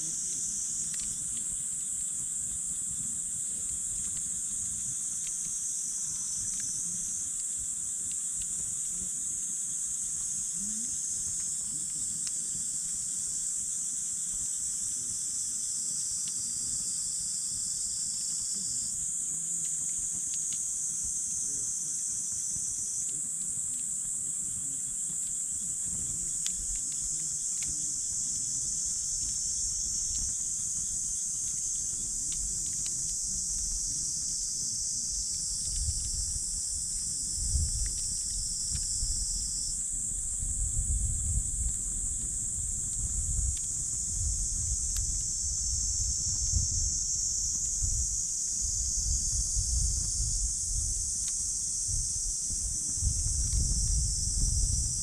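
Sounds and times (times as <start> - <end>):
campfire crackling and popping: 0.0 - 17.0, 17.8 - 48.6, 49.9 - 54.2
insect chorus trilling: 0.0 - 55.0.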